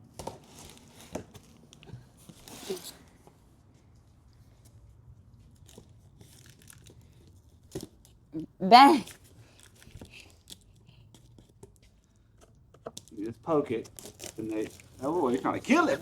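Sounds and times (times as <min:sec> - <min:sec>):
packing tape tearing: 0:13.8 - 0:16.0.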